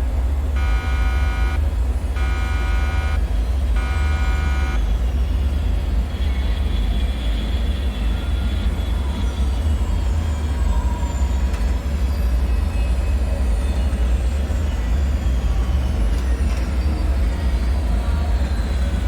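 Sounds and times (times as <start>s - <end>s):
deep rumbling drone: 0.0s - 6.8s
buzzing alarm tone: 0.5s - 5.0s.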